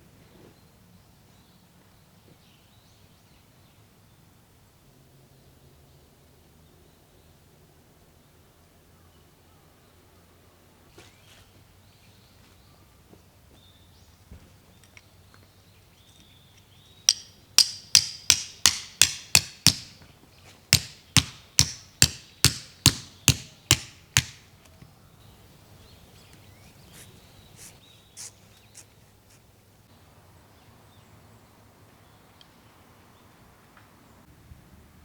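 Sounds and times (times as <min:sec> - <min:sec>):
hammer striking metal tent peg: 0:17.1 - 0:20.0, 0:20.7 - 0:24.5.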